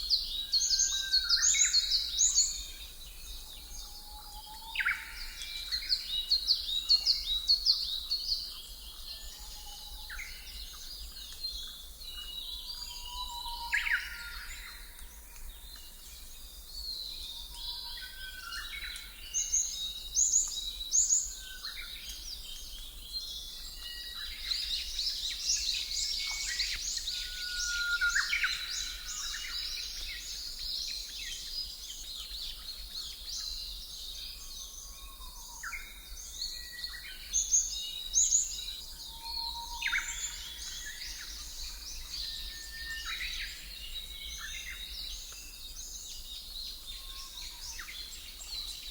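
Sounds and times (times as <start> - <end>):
birds chirping and whistling: 23.8 - 31.6, 35.6 - 48.9.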